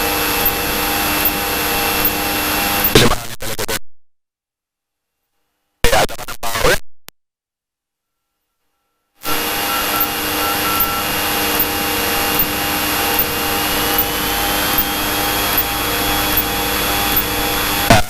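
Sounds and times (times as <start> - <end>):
aircraft engine drone in cockpit: 0.0 - 3.0, 9.2 - 18.0.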